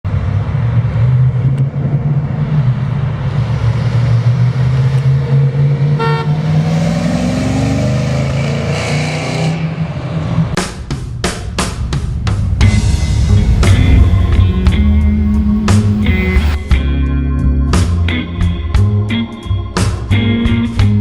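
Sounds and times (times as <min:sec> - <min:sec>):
short horn beep: 0:06.0 - 0:06.4
car engine idling: 0:10.6 - 0:17.0.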